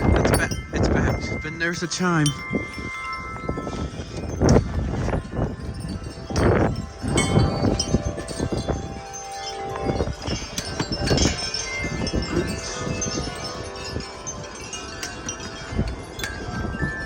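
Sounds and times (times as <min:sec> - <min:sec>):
wind chimes ringing: 0:00.0 - 0:17.0
wind rumble on microphone: 0:00.0 - 0:17.0.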